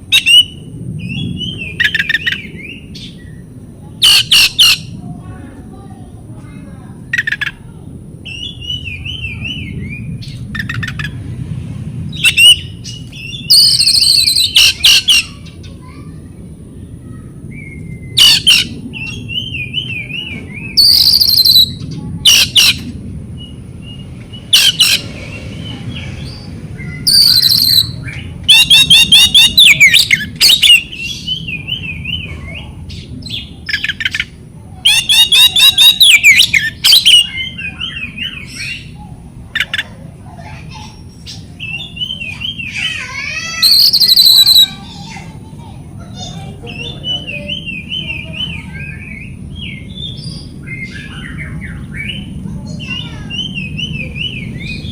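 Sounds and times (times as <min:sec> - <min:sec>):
low steady rumble: 0:00.0 - 0:54.9
bird singing whistles and trills: 0:00.1 - 0:04.9, 0:08.2 - 0:11.1, 0:12.1 - 0:15.3, 0:17.5 - 0:22.8, 0:26.2 - 0:34.3, 0:34.9 - 0:39.0, 0:40.9 - 0:42.8, 0:43.5 - 0:44.8, 0:46.6 - 0:54.9.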